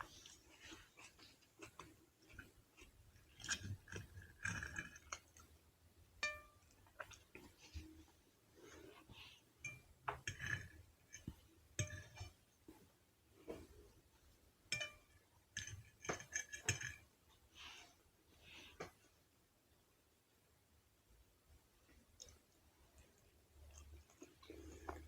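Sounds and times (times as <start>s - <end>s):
person chewing: 0.0s - 5.6s, 23.2s - 25.0s
utensil clinking on dish: 6.2s - 7.1s, 9.6s - 12.4s, 14.7s - 17.0s.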